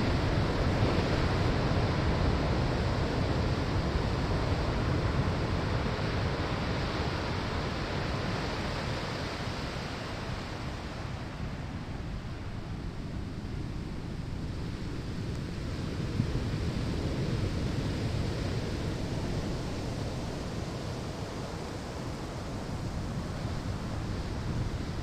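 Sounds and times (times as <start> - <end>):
ocean waves on shore: 14.1 - 25.0.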